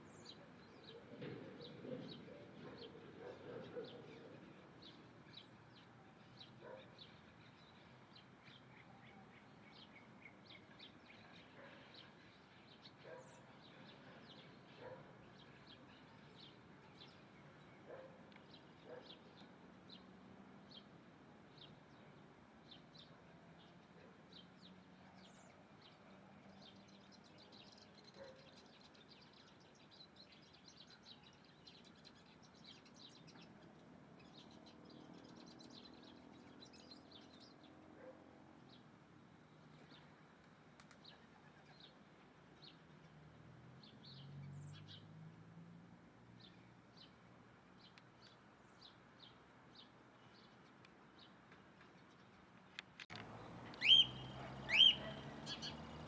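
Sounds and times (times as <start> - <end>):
small birds chirping: 46.4 - 56.0.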